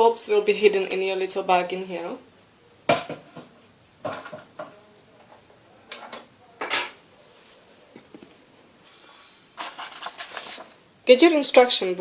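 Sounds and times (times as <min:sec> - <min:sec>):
small hard objects clattering: 0:09.6 - 0:10.8.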